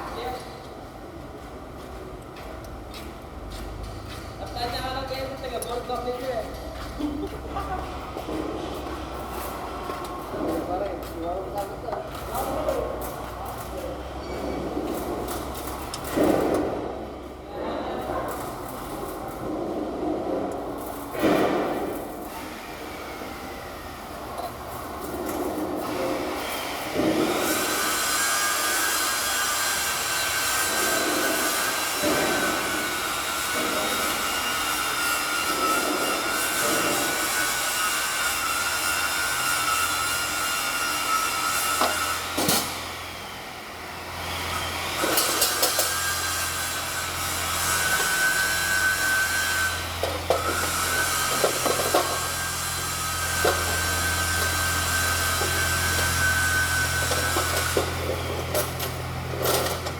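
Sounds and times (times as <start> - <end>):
power tool whining: 25.8 - 59.9
scraping on metal: 45.0 - 59.9.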